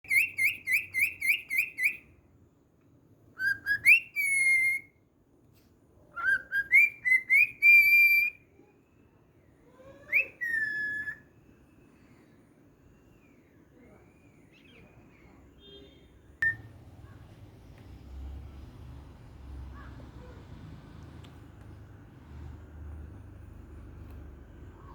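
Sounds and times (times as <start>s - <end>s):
cockatiel whistling: 0.0s - 2.1s, 3.4s - 4.9s, 6.2s - 8.4s, 9.9s - 11.3s, 16.4s - 16.7s.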